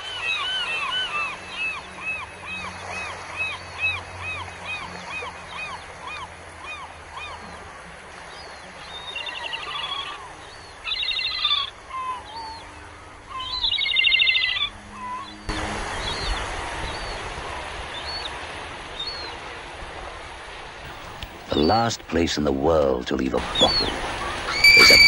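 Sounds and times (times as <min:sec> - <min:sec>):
bird whistled notes: 0:24.5 - 0:25.0.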